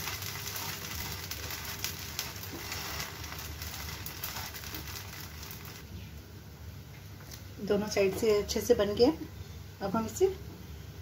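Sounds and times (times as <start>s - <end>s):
pancake sizzling in a pan: 0.0s - 5.8s.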